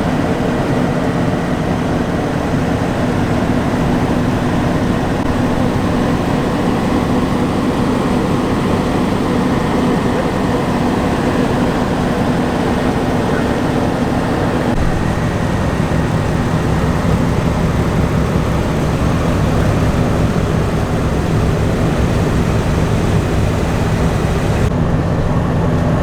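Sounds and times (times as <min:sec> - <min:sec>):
car engines idling: 0:00.0 - 0:26.0.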